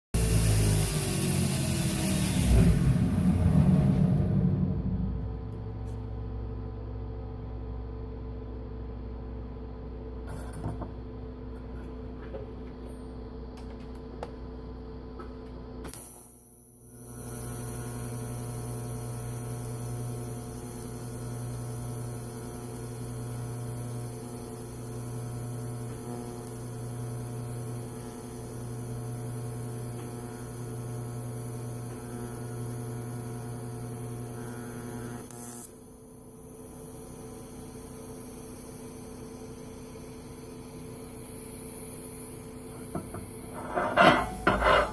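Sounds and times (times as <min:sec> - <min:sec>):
welding arc striking hiss: 0:00.2 - 0:04.2
welding arc buzzing: 0:00.2 - 0:04.5, 0:17.0 - 0:35.8, 0:36.7 - 0:44.9
welder mains hum: 0:00.2 - 0:44.9.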